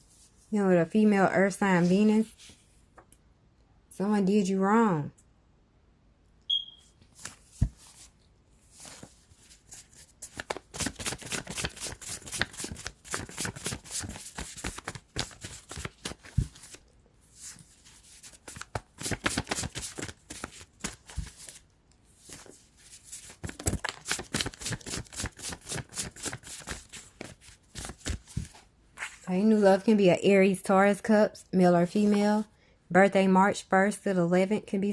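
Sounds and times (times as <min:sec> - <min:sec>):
cards being shuffled: 0:08.7 - 0:16.8, 0:17.4 - 0:21.6, 0:22.2 - 0:29.2.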